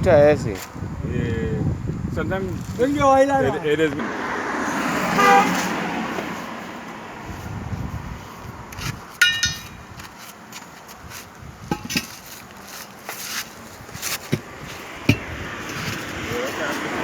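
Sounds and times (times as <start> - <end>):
passing vehicle: 2.8 - 9.9, 14.3 - 17.0
tyre tools knocking on wheel rim: 8.8 - 10.2, 11.6 - 12.3, 14.0 - 17.0
metal-on-metal clinks: 9.2 - 9.9.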